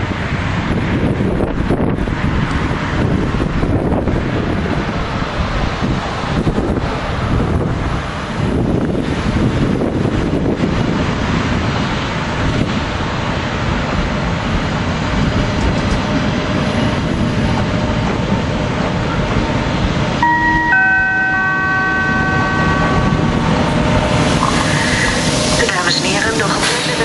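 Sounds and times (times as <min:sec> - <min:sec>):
train wheels rumbling on rail: 0:00.0 - 0:27.0
ringing tones: 0:20.2 - 0:24.2.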